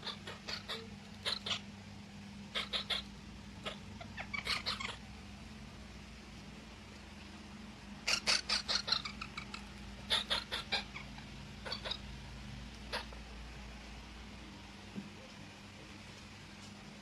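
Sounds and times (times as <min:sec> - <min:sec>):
parrot calling: 0:00.0 - 0:01.7, 0:02.5 - 0:05.1, 0:08.0 - 0:12.2, 0:12.8 - 0:13.3.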